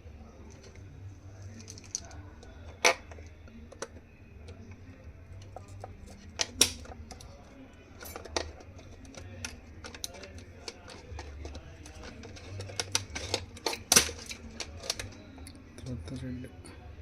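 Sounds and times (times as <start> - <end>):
tools clicking on plastic housing: 5.4 - 15.4.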